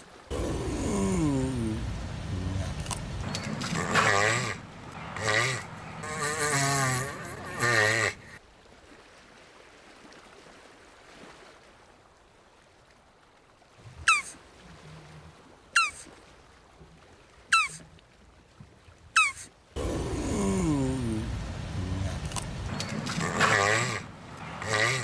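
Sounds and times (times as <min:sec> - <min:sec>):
tortoise moaning call: 0:00.3 - 0:08.4, 0:19.2 - 0:25.0
tortoise short sharp calls: 0:00.3 - 0:08.4, 0:14.0 - 0:14.4, 0:15.8 - 0:16.1, 0:17.5 - 0:17.8, 0:19.2 - 0:25.0.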